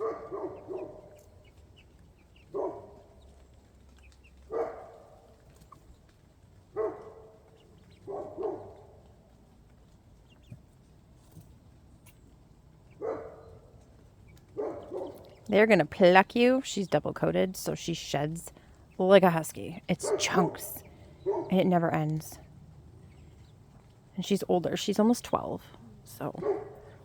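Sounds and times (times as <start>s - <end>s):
hens clucking: 13.7s - 22.4s.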